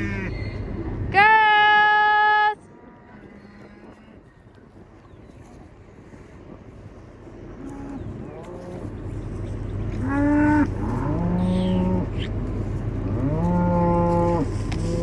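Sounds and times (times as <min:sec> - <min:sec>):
low steady hum: 0:00.0 - 0:15.0
cows mooing: 0:07.6 - 0:15.0.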